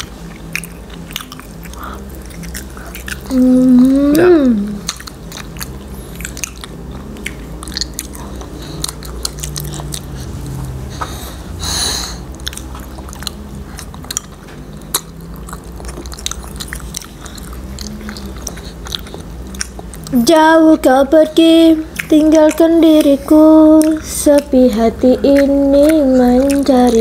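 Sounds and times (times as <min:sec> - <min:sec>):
close chewing and mouth smacks: 0:00.0 - 0:11.4, 0:12.2 - 0:27.0
breathy rush: 0:10.1 - 0:12.4.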